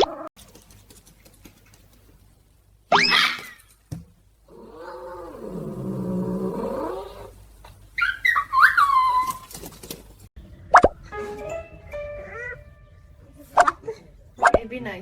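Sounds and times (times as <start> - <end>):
cat yowling: 12.1 - 12.8.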